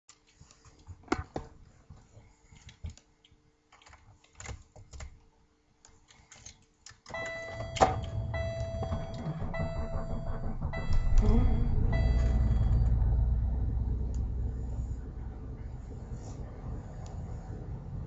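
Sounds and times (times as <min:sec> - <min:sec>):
faint steady hum: 0:00.1 - 0:18.0
steady high tone: 0:07.2 - 0:14.1
car engine starting and running: 0:07.2 - 0:18.0.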